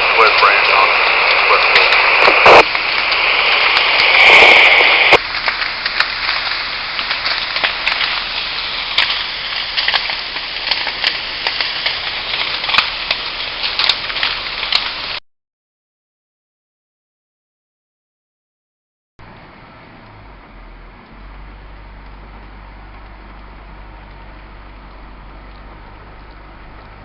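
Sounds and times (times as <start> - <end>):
fire crackling and popping: 0.0 - 15.2, 19.2 - 27.0
steady hiss: 0.0 - 15.2, 19.2 - 27.0
two-way radio static: 0.0 - 15.2.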